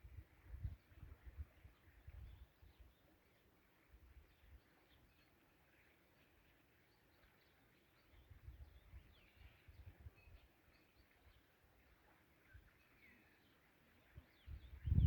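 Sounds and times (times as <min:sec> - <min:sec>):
light wind gusts on microphone: 0:00.0 - 0:03.0, 0:14.0 - 0:15.0.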